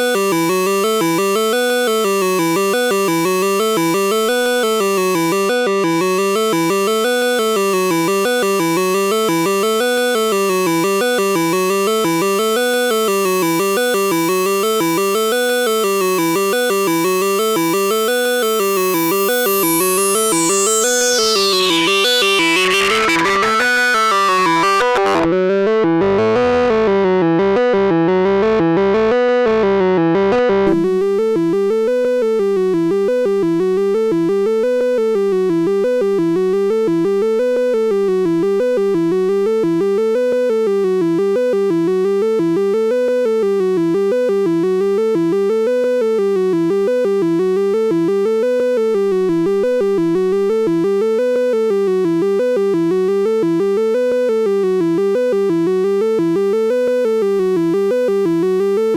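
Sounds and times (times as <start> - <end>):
analog synthesizer note sequence: 0.0 - 29.4.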